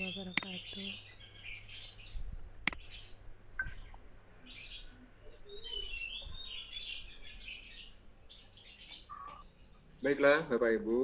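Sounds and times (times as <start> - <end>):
small birds chirping: 0.0 - 11.0
sharp click: 2.6 - 2.8.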